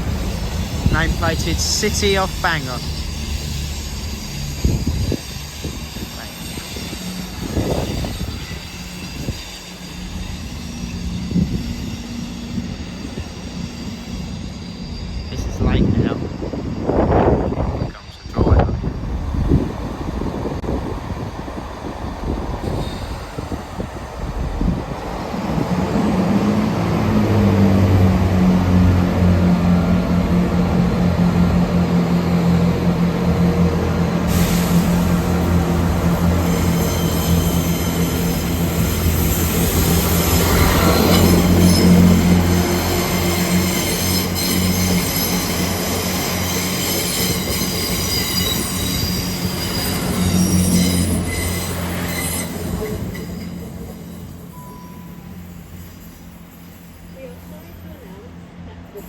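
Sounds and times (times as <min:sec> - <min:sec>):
train rumbling: 0:00.0 - 0:59.0
air hiss: 0:34.2 - 0:36.8.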